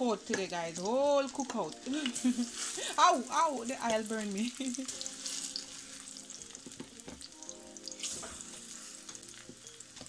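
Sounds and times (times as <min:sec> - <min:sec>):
oil sizzling in a pan: 0:00.0 - 0:10.0.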